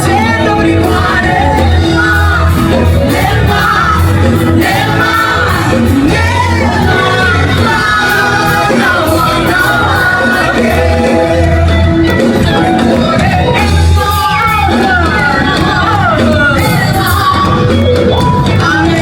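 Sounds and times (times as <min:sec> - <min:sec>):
person singing: 0:00.0 - 0:19.0
pulsing bass line: 0:00.0 - 0:19.0.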